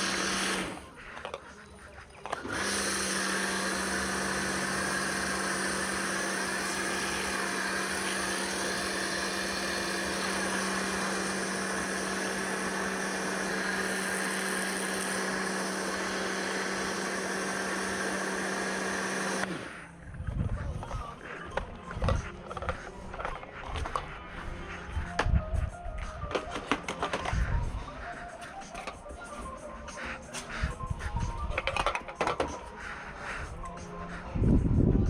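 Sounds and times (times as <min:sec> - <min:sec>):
pressure washer running: 0:00.0 - 0:00.8, 0:02.3 - 0:19.8.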